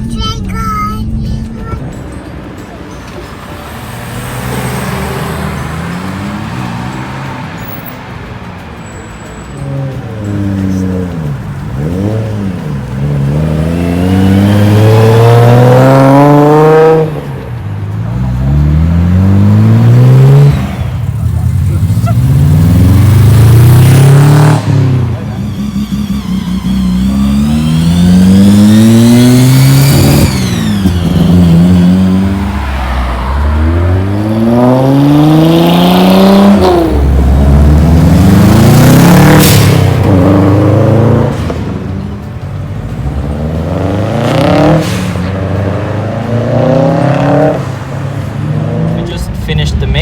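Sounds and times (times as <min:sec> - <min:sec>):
car engines accelerating hard: 0:00.0 - 0:50.0.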